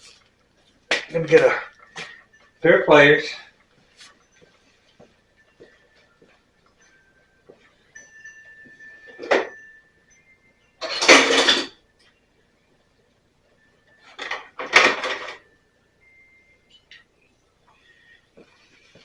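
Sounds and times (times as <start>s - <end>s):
metal hand tools clattering: 10.8s - 11.8s.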